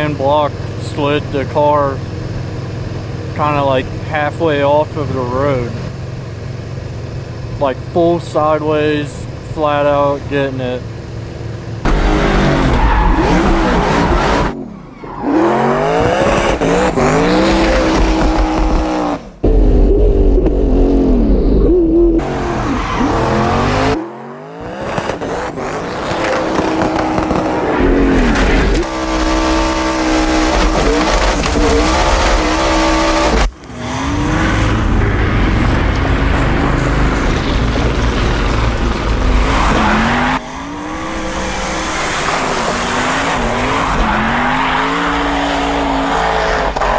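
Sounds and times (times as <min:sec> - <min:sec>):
race car engine revving: 0:11.8 - 0:46.9.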